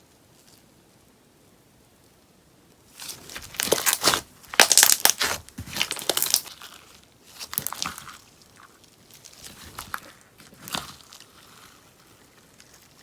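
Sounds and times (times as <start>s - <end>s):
slime popping and crackling: 3.0s - 13.0s.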